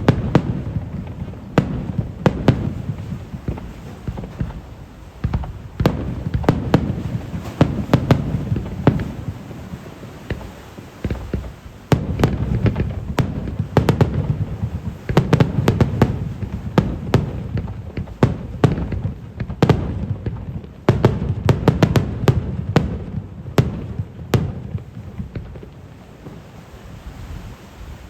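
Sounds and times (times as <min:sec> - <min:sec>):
fireworks bangs: 0:00.0 - 0:28.0
low rumble of fireworks: 0:00.0 - 0:28.0.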